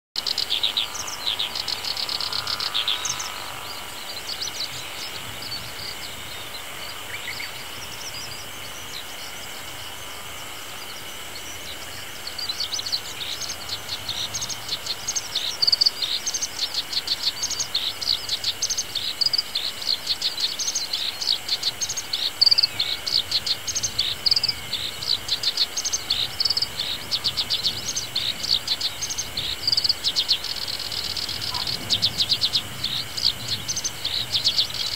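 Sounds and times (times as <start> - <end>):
warbler singing chattering notes: 10.9 - 34.9.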